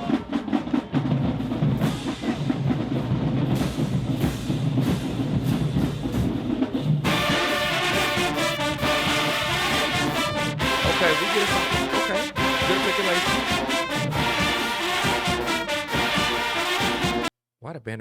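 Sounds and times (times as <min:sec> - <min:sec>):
marching drumline cadence: 0:00.0 - 0:17.3
brass section playing: 0:07.0 - 0:17.3.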